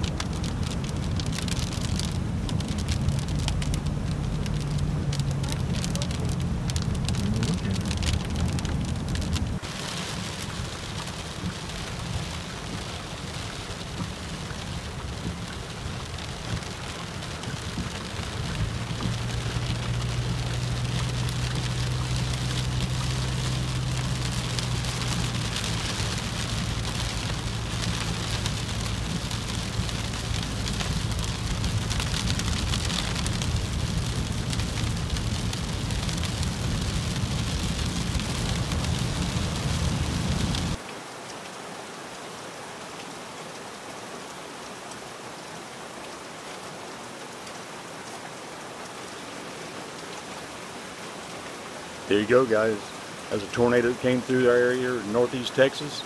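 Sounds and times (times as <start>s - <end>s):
car engine and road hum: 0.0s - 40.8s
rain pattering on a car: 0.0s - 56.0s.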